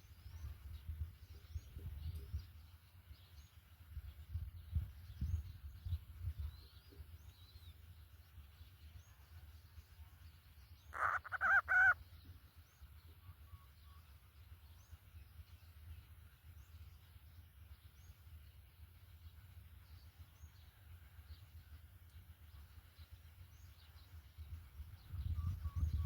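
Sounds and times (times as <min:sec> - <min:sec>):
low outdoor rumble: 0:00.0 - 0:26.0
harsh bird call: 0:10.9 - 0:12.0
faint small bird chirps: 0:11.0 - 0:15.8, 0:23.6 - 0:26.0.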